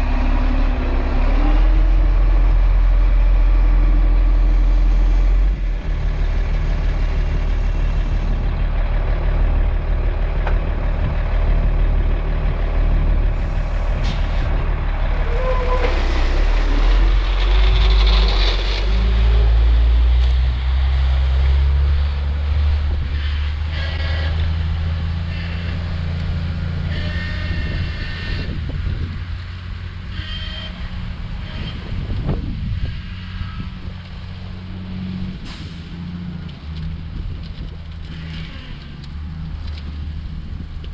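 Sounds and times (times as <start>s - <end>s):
diesel truck engine running: 0.0s - 30.0s.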